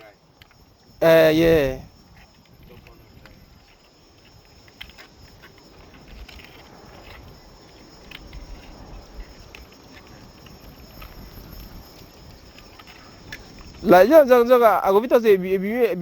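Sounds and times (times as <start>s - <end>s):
insect chirring: 0.0s - 16.0s.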